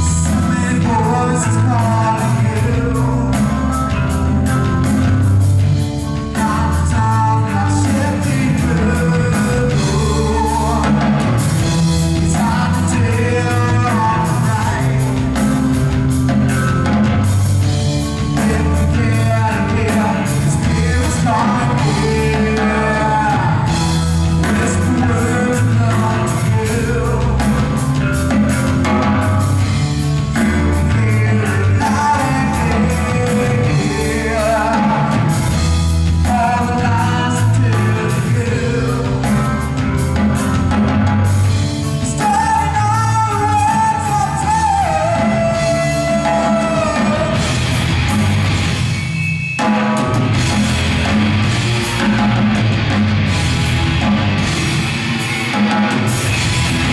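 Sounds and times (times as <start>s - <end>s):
person singing: 0.0s - 5.4s, 6.0s - 16.0s, 18.1s - 40.5s, 41.2s - 47.7s
rock band playing: 0.0s - 56.9s.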